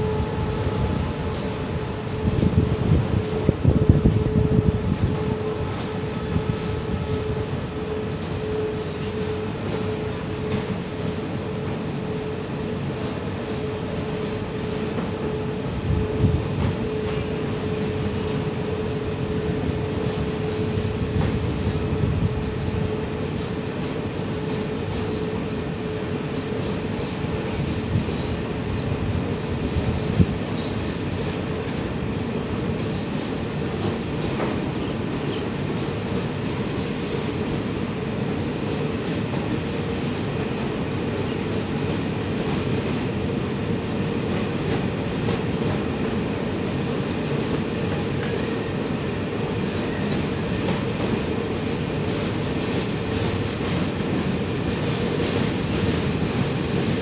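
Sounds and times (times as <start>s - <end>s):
freight train wheels rumbling: 0.0s - 57.0s
high-pitched squeal: 24.4s - 31.4s
thinner higher squeal: 24.4s - 31.5s.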